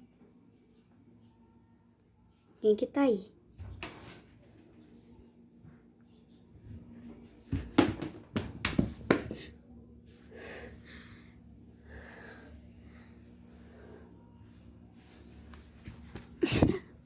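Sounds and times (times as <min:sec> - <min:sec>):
faint breathy sound: 0:10.2 - 0:14.8.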